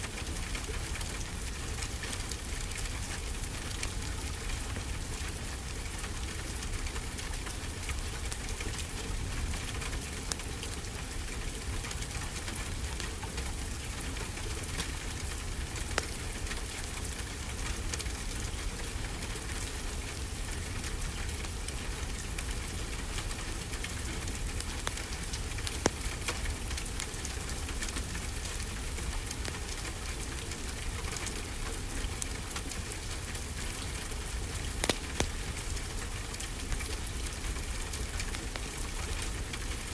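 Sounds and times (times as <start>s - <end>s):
steady rainfall: 0.0s - 39.9s
wood fire crackling and popping: 9.6s - 39.9s.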